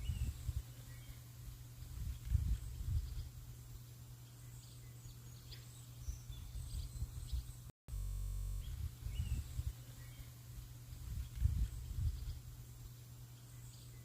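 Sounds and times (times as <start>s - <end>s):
small birds chirping: 0.0s - 14.0s
low outdoor rumble: 6.4s - 13.6s.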